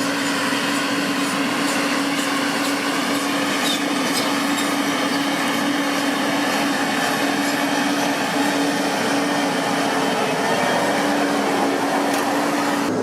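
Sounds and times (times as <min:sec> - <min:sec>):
rushing noise: 0:03.0 - 0:13.0.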